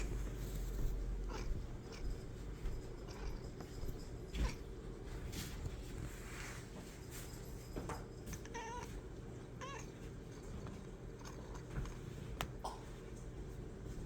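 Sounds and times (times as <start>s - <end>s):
steady low hum: 0.0s - 14.0s
cat meowing: 8.4s - 9.0s, 9.6s - 9.9s.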